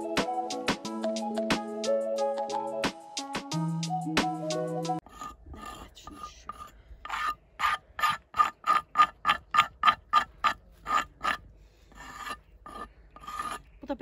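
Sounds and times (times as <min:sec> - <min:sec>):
glass scraping wood: 0:05.0 - 0:13.8.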